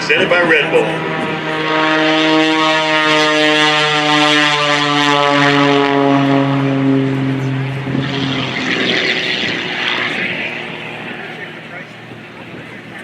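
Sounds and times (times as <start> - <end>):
propeller plane droning past: 0.0 - 13.0.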